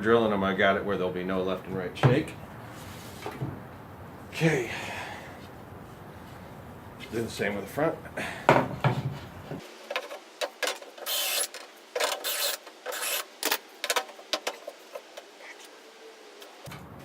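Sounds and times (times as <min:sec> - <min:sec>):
power drill cutting wood: 0:11.0 - 0:13.6.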